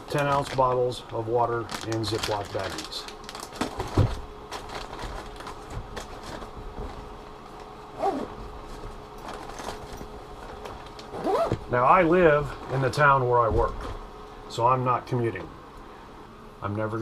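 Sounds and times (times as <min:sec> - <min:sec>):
plastic rustling: 0:00.1 - 0:11.8.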